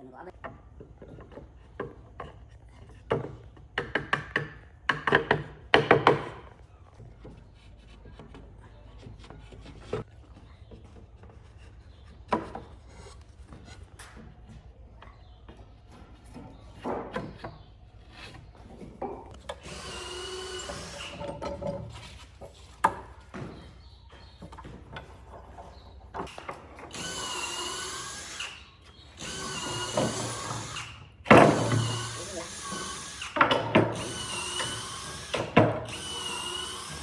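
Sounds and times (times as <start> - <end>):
power tool motor whining: 19.5 - 21.4, 26.9 - 37.0.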